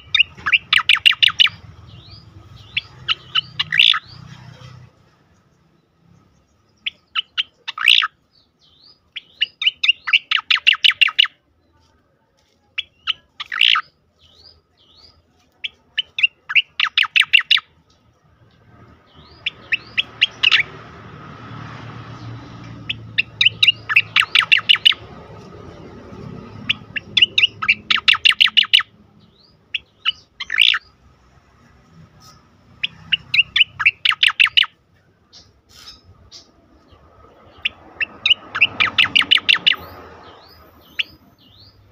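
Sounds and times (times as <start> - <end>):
bird singing sharp notes: 5.4 - 11.4, 22.2 - 25.2, 26.5 - 31.0.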